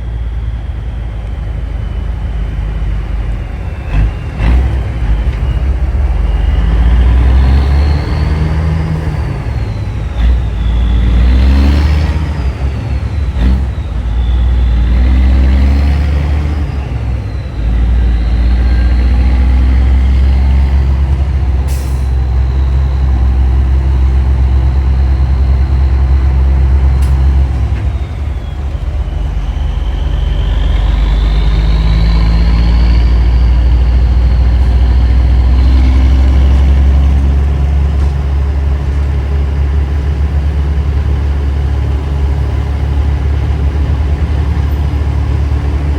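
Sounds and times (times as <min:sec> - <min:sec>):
truck diesel engine droning: 0:00.0 - 0:45.9.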